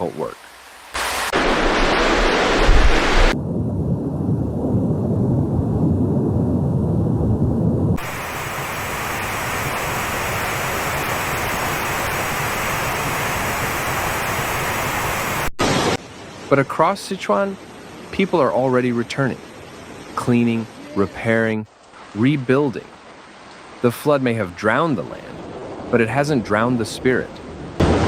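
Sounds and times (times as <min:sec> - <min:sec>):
floodwater rushing: 0:00.0 - 0:03.4, 0:08.0 - 0:28.0
heavy rain: 0:00.0 - 0:03.4, 0:08.0 - 0:28.0
deep rumble: 0:02.5 - 0:08.6.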